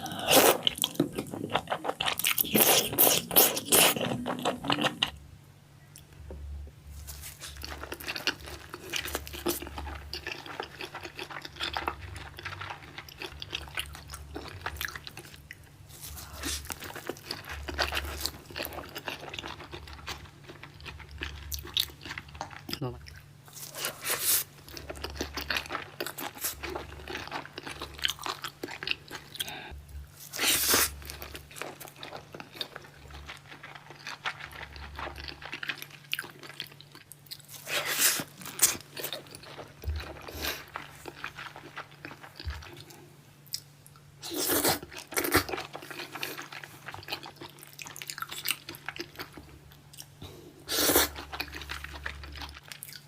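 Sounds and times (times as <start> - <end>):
chewing with wet mouth clicks: 44.6 - 50.2.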